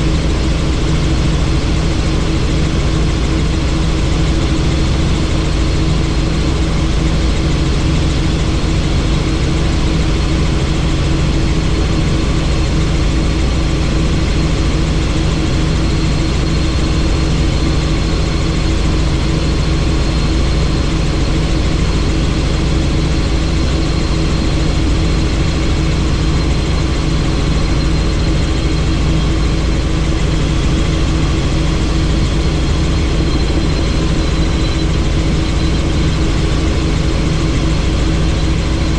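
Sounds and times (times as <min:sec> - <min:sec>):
helicopter engine and rotor hum: 0:00.0 - 0:38.9
faint high whine: 0:14.6 - 0:38.9.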